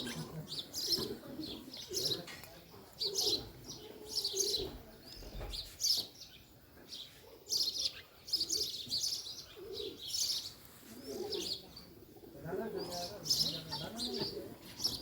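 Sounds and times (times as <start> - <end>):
birds chirping: 0.0 - 15.0
low bird calls: 7.5 - 15.0.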